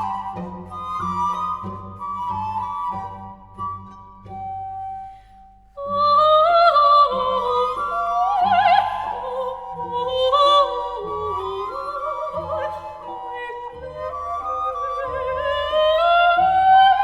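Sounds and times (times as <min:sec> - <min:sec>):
background music: 0:00.0 - 0:05.7.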